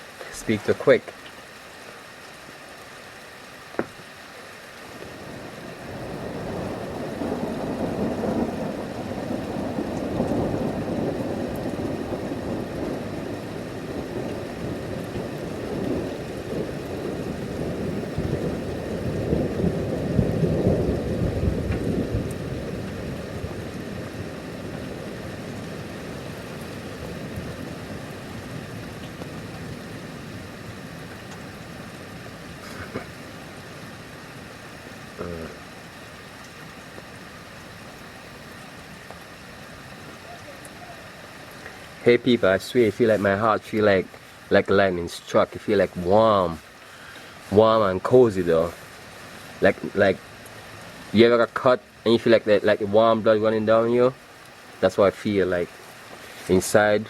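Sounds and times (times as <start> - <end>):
thunder rolling: 5.2 - 31.6.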